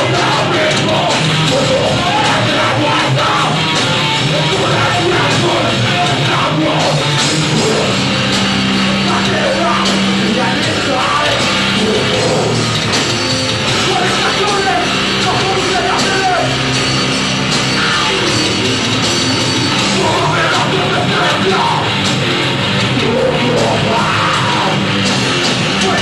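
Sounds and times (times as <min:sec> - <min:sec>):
loud live rock band: 0:00.0 - 0:26.0.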